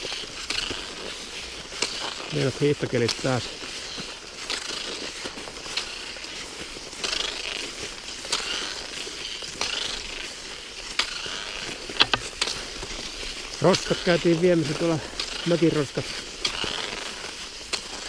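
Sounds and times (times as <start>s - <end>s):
skis swishing on snow: 0.0s - 18.0s
ski pole click: 9.6s - 18.0s.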